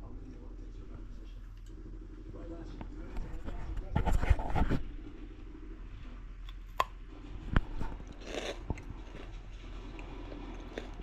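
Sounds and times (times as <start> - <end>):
noisy scrape: 3.0 - 5.3.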